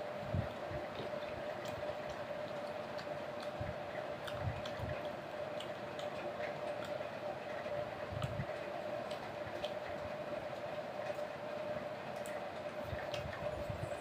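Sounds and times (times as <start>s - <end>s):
steady background hum: 0.0s - 14.0s
chewing mouth clicks: 0.5s - 7.0s.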